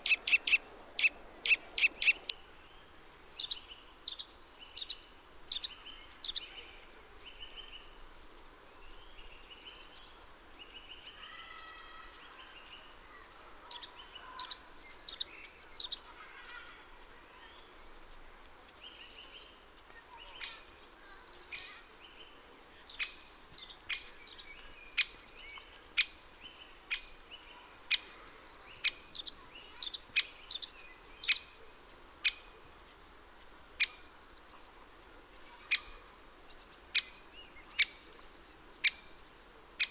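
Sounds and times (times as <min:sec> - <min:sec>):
songbird phrases: 0:00.0 - 0:08.0, 0:08.7 - 0:32.7, 0:33.7 - 0:39.9.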